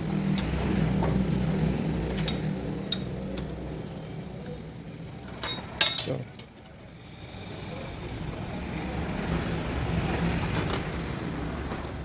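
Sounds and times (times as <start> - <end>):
light metallic clinks: 5.4 - 6.6.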